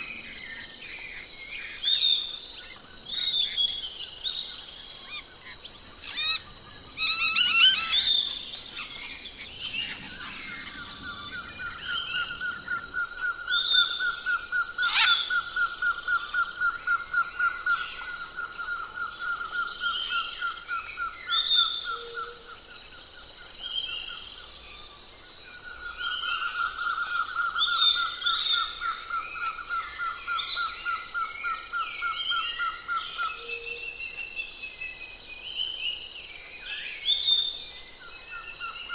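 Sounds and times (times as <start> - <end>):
birds chirping and whistling: 0.0 - 38.9.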